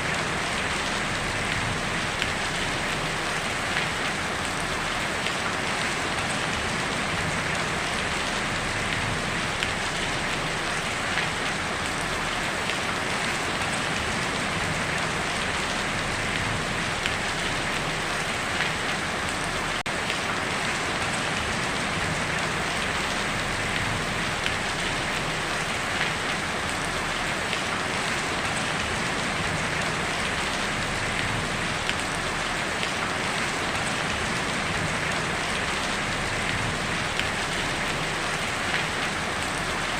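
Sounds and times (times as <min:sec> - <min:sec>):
heavy rain on a tin roof: 0:00.0 - 0:39.9.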